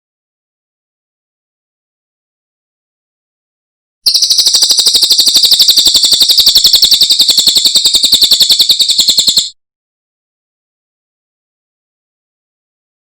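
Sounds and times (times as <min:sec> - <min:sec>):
songbird fast trill: 0:04.1 - 0:09.6.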